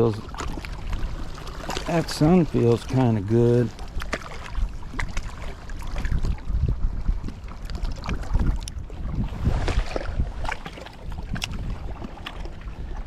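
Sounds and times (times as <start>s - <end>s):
water lapping and splashing: 0.0s - 13.0s
wind buffeting microphone: 0.0s - 13.0s.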